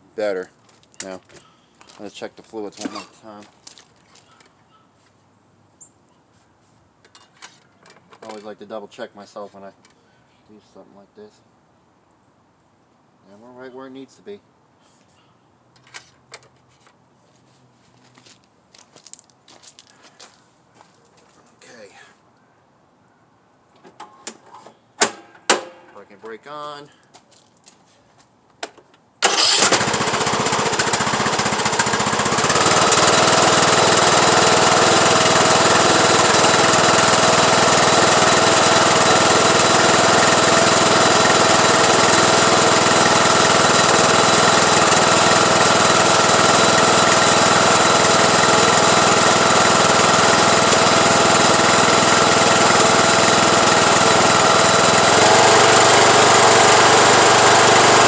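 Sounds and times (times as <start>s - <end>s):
lawn tractor engine running: 29.2s - 58.0s.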